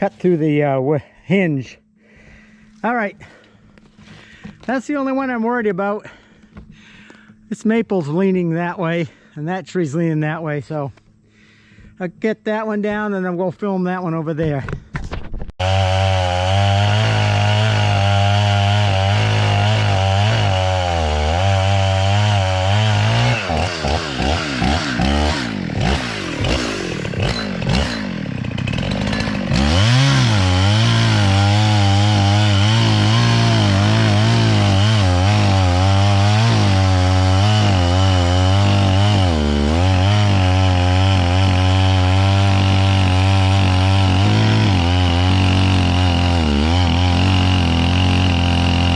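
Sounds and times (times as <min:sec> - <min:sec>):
chainsaw cutting tree: 0:15.6 - 0:48.9.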